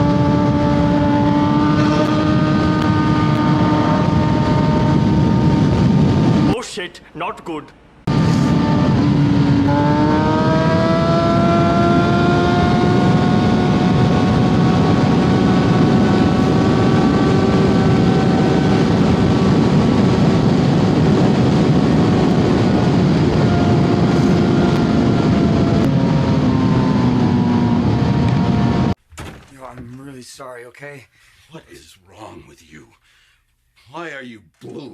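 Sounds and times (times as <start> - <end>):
motorcycle engine revving: 0.0 - 6.5, 8.1 - 29.0
wind rush on microphone: 0.0 - 6.6, 8.1 - 29.0.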